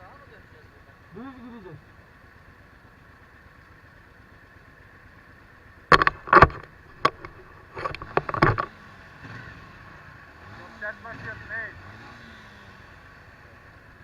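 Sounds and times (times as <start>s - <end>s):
knocks on microphone: 5.9s - 8.7s.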